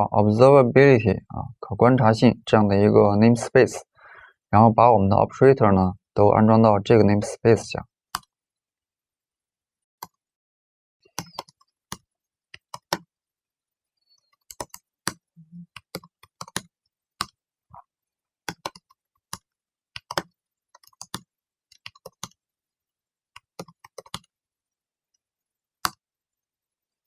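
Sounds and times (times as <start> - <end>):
typing on computer keyboard: 11.1 - 12.0, 14.3 - 17.4, 18.4 - 22.4, 23.3 - 24.3.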